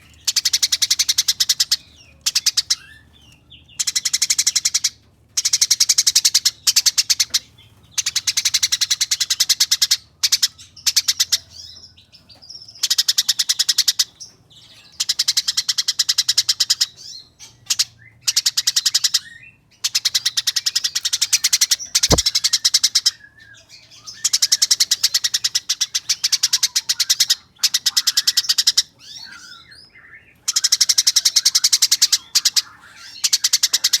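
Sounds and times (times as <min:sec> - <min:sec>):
sharp click: 0:22.1 - 0:22.3.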